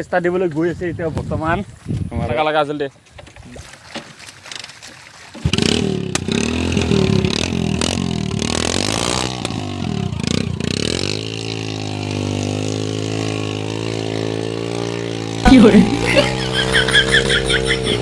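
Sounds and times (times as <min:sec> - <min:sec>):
tractor engine starting and idling: 0:05.4 - 0:11.1.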